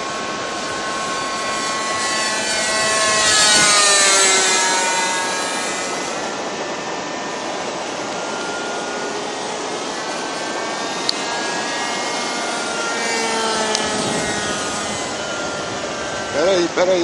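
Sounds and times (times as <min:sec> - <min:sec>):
wind noise on microphone: 0:00.0 - 0:07.8, 0:13.2 - 0:17.0
model airplane engine whining: 0:00.0 - 0:17.0.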